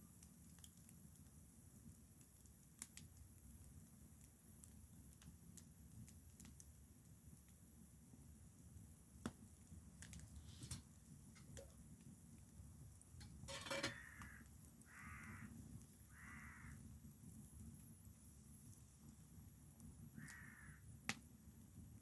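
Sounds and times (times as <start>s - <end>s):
crow cawing faintly: 13.6s - 16.9s, 20.1s - 21.0s.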